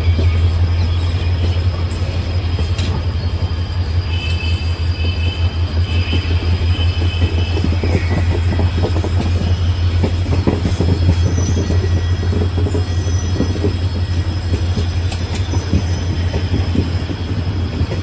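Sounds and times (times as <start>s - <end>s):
high wheel squeal: 0.0s - 18.0s
train coaches rumbling past: 0.0s - 18.0s
wheel clatter over rail joints: 6.1s - 18.0s.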